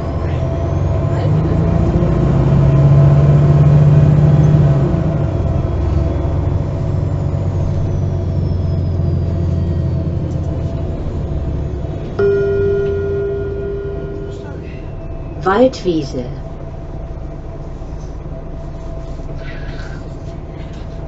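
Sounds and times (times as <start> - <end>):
bus diesel engine running: 0.0 - 21.0
faint high whine: 12.2 - 15.7.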